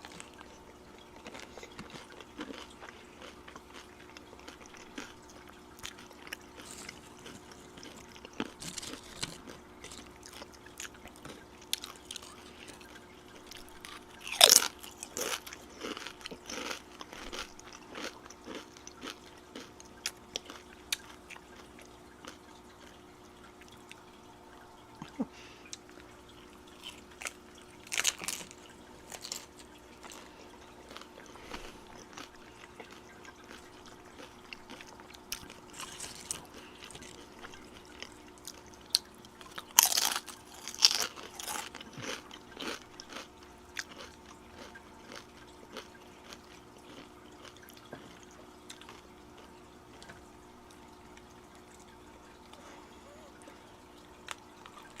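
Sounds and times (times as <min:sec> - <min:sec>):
crunching and chewing tacos: 0:00.0 - 0:24.1, 0:25.0 - 0:53.3.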